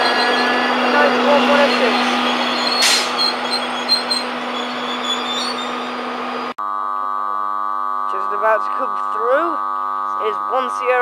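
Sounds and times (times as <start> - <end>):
train coaches rolling past: 0.0 - 6.5
buzzing hum: 0.0 - 11.0.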